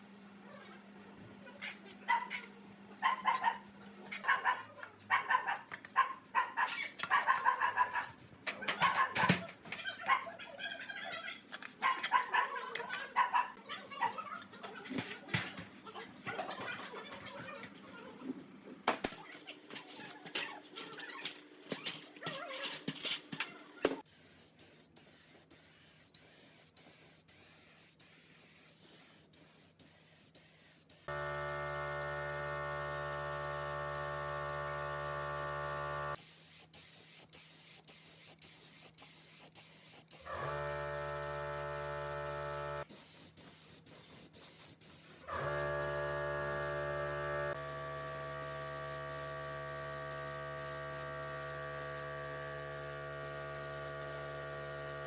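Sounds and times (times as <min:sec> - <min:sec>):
electric motor humming: 0:31.1 - 0:36.2, 0:40.3 - 0:42.8, 0:45.3 - 0:55.0.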